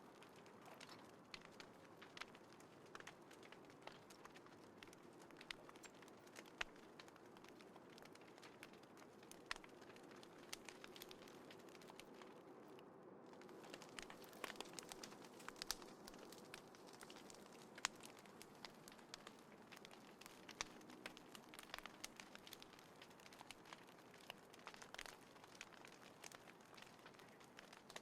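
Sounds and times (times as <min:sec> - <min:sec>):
faint steady hiss: 0:00.0 - 0:28.0
wood fire crackling and popping: 0:00.0 - 0:28.0.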